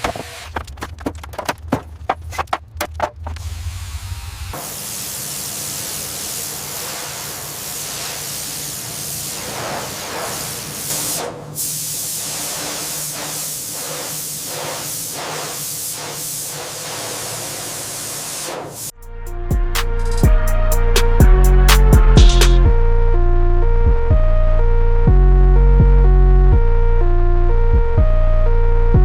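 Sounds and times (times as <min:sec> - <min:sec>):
steady hiss with surges: 0:03.5 - 0:11.1.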